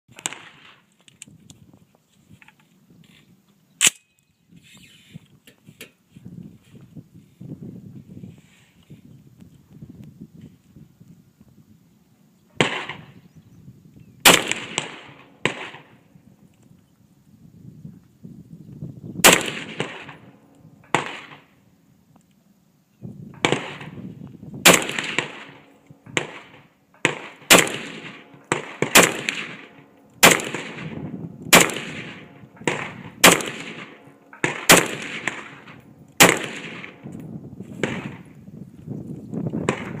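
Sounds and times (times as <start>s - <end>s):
rifle shots: 0.1s - 0.9s, 12.6s - 13.2s, 14.2s - 16.1s, 19.2s - 21.5s, 23.4s - 24.0s, 24.6s - 38.3s, 39.6s - 40.0s
fainter distant gunshots: 12.6s - 13.2s, 14.2s - 16.1s, 19.2s - 21.5s, 23.4s - 24.0s, 24.6s - 37.1s, 37.8s - 38.3s, 39.6s - 40.0s.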